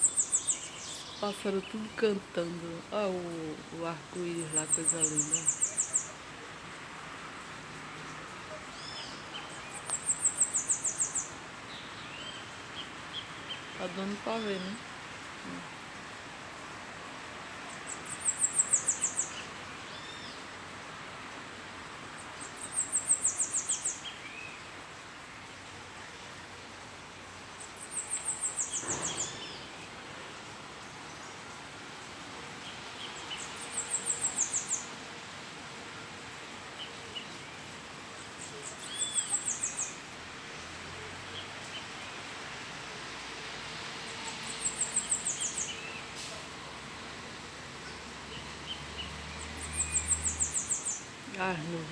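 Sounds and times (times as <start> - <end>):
other birds calling: 0.0 - 6.2, 27.6 - 30.0.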